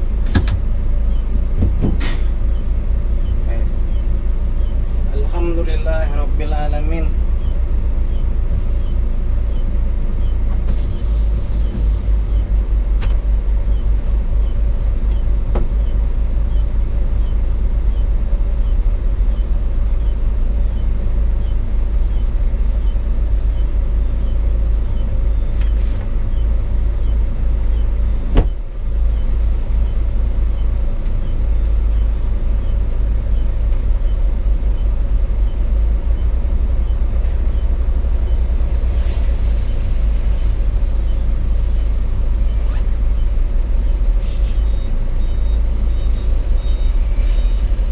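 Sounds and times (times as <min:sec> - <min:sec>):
diesel engine rumbling in cab: 0:00.0 - 0:47.9.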